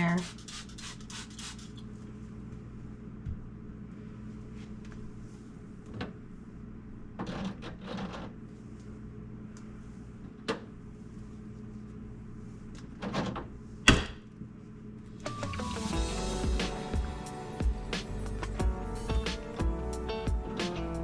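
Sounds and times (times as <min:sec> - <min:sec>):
steady low hum: 0:16.0 - 0:21.0.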